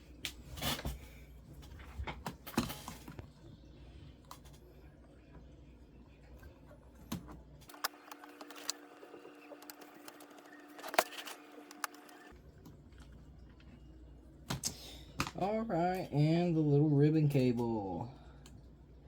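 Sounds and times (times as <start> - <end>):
steady even-pitched hum: 0.0 - 19.0
laptop parts clicking: 7.1 - 12.3.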